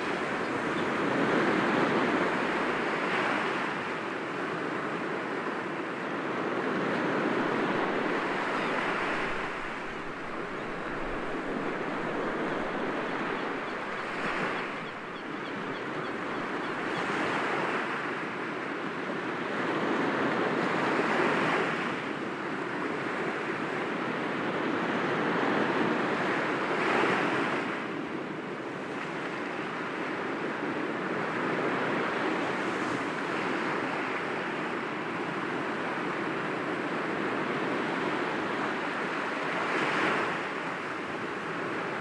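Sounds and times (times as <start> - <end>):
sea waves breaking on rocks: 7.2 - 15.3.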